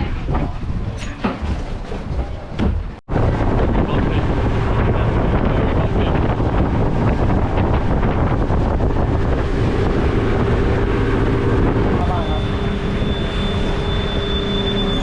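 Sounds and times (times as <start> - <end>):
wind buffeting microphone: 0.0 - 14.2
boat engine running: 0.0 - 15.0
rushing water: 3.1 - 15.0.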